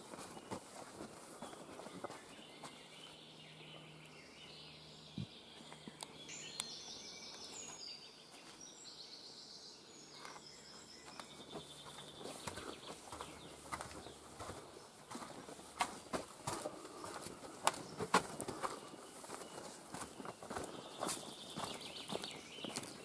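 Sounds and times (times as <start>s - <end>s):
bird singing high trills: 2.0s - 13.6s.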